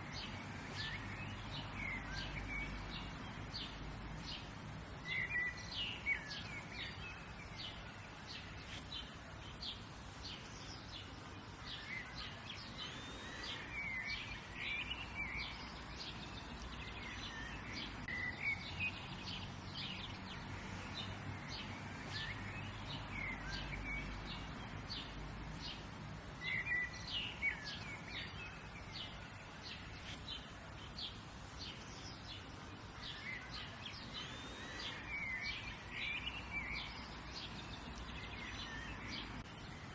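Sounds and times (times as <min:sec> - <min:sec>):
birds chirping and calling: 0:00.0 - 0:39.9
low background noise: 0:00.0 - 0:39.9.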